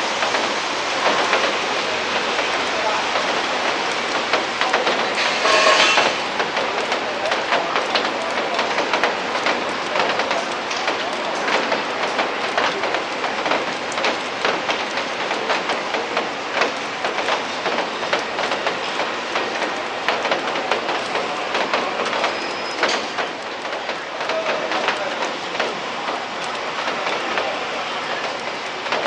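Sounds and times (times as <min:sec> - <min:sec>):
rain hiss: 0:00.0 - 0:29.0
raindrops ticking on microphone: 0:00.0 - 0:29.0.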